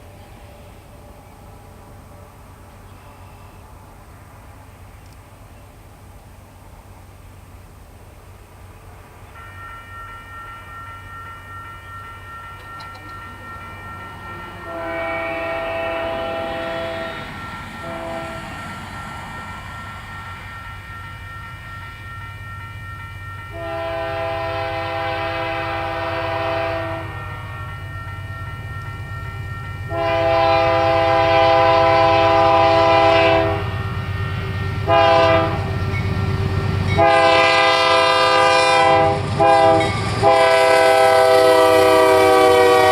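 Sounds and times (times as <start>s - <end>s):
diesel locomotives rumbling: 0.0s - 42.9s
train air horn blasts: 14.6s - 18.5s, 23.5s - 27.6s, 29.9s - 33.8s, 34.7s - 35.8s, 37.0s - 42.9s.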